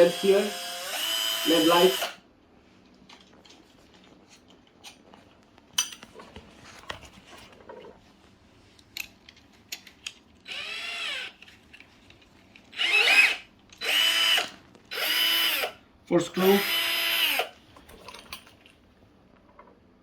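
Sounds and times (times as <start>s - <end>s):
cordless drill motor whine: 0.0s - 2.2s, 10.5s - 11.4s, 12.8s - 15.8s, 16.4s - 17.6s.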